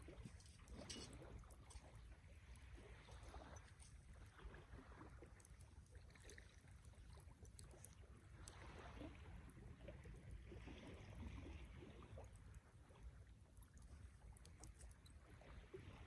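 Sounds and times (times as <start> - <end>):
campfire crackling: 0.0 - 2.2.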